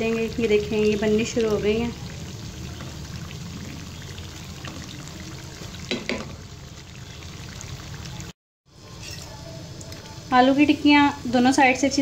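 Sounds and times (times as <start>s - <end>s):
patties sizzling in oil: 0.0s - 12.0s
utensil knock: 5.9s - 6.4s.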